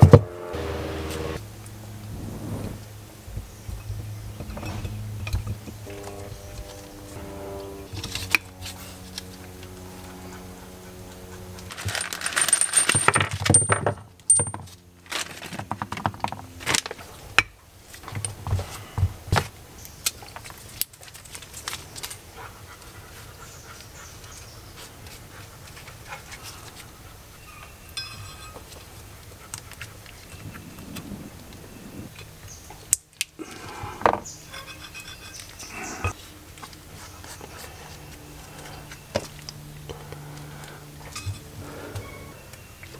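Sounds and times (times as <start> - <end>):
metal scraping and clattering: 11.6 - 16.8
small metal parts clinking: 11.7 - 16.9.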